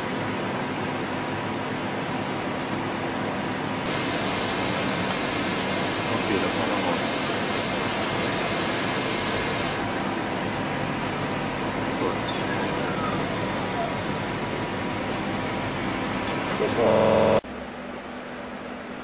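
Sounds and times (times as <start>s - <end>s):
loud even hiss: 3.8s - 9.8s
lathe humming: 3.8s - 12.8s.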